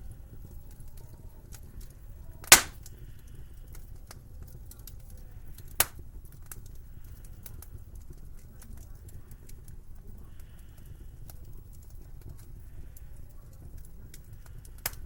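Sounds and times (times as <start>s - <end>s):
low steady fire rumble: 0.0s - 15.0s
wood fire crackling: 0.0s - 15.0s
sharp loud fire pops: 2.5s - 2.8s.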